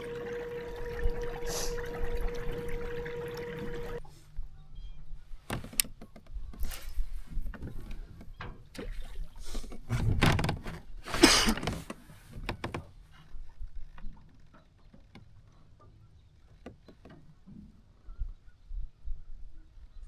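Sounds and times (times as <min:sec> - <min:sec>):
water swishing: 0:00.0 - 0:04.0
knocks and clicks against hull: 0:05.4 - 0:17.9.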